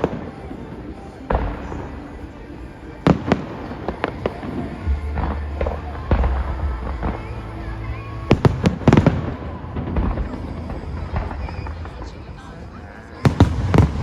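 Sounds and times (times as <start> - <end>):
fireworks booming: 0.0 - 14.0
sharp firework cracks: 13.2 - 14.0.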